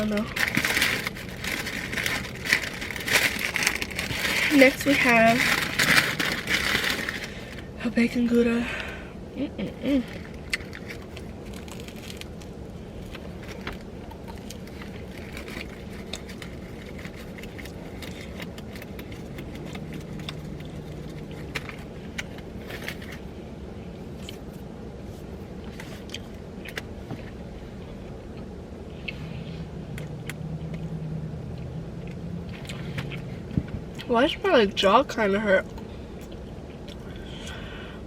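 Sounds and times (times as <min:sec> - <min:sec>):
paper wrapper crinkling: 0:00.0 - 0:07.7, 0:10.0 - 0:23.2
car cabin hum: 0:00.0 - 0:37.0.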